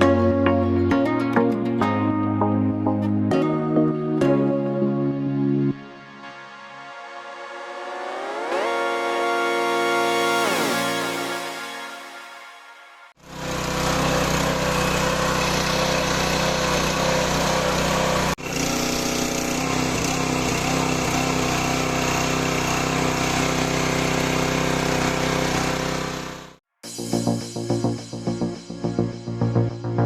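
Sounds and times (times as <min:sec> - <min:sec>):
pressure washer engine running: 0:13.2 - 0:26.6.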